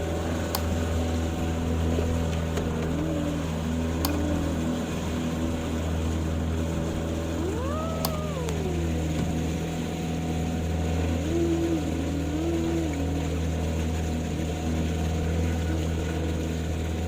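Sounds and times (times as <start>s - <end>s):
engine running steadily: 0.0s - 17.0s
faint clicks: 3.9s - 4.6s, 7.6s - 9.3s.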